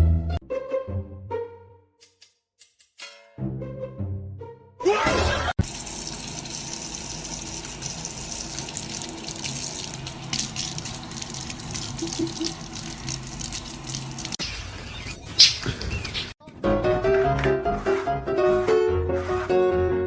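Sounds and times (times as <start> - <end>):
tap water running: 5.6 - 16.4.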